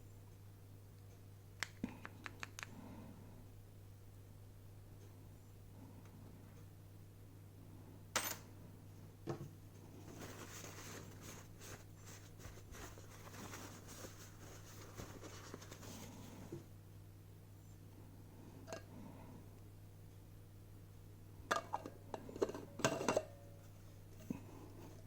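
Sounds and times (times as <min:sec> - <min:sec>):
electrical hum: 0:00.0 - 0:25.0
scratching and small clicks: 0:01.1 - 0:02.8.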